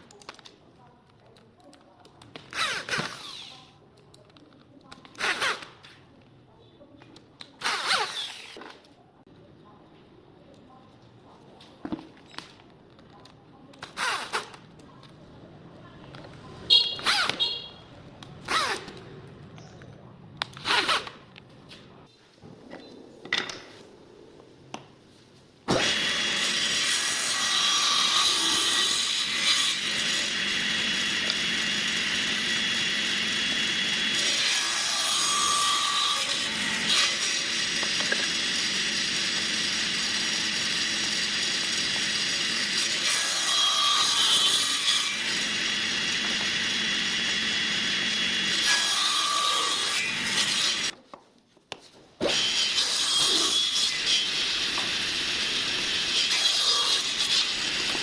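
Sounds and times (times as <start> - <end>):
power tool working wood: 25.7 - 50.9, 52.3 - 58.0.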